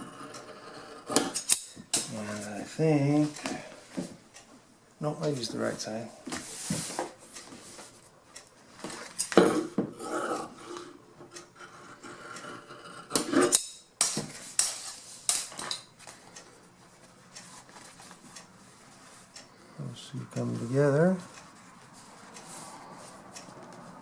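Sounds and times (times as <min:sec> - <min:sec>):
rubbing and rustling: 0:05.5 - 0:08.1, 0:16.8 - 0:19.4.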